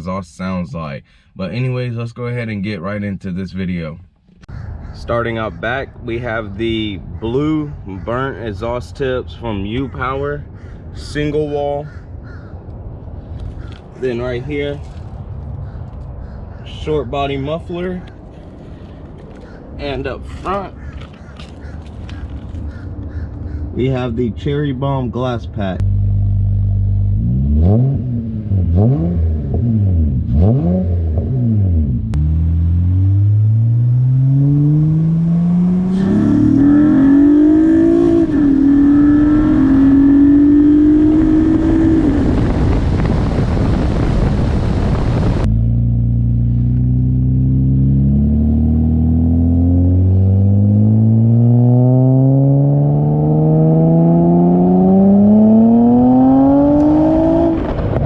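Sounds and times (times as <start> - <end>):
car engine revving: 21.0 - 58.0.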